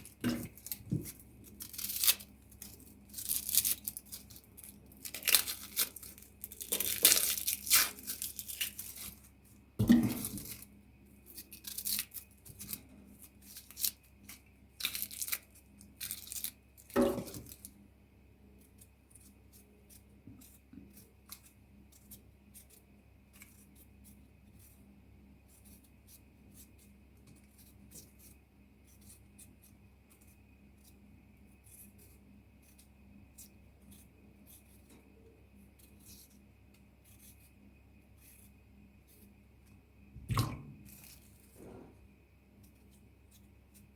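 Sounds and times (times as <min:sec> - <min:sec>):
tearing and rustling: 0:00.0 - 0:09.3, 0:11.3 - 0:17.7.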